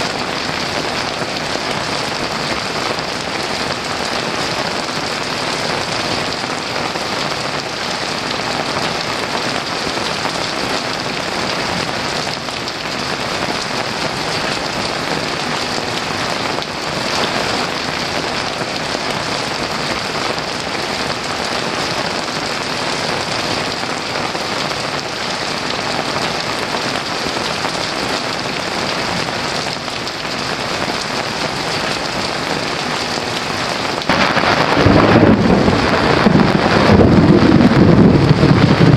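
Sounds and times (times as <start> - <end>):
heavy rain pouring: 0.0 - 38.9
thunder rolling: 34.1 - 38.9.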